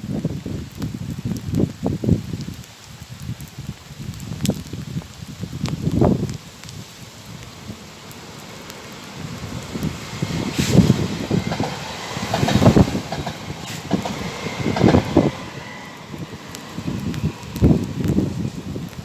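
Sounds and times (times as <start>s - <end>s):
passenger train passing: 7.3s - 19.0s.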